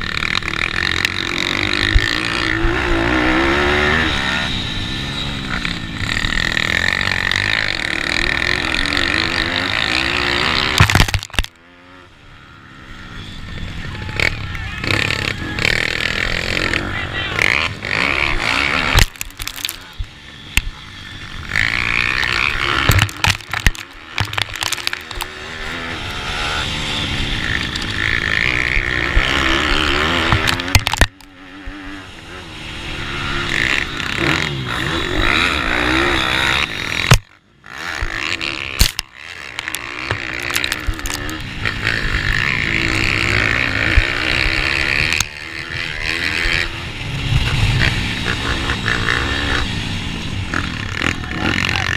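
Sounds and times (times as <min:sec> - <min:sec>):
motorbike engine revving: 0:00.0 - 0:51.9
crackling noise: 0:06.0 - 0:11.6, 0:18.3 - 0:26.3, 0:27.3 - 0:31.8, 0:38.7 - 0:45.8.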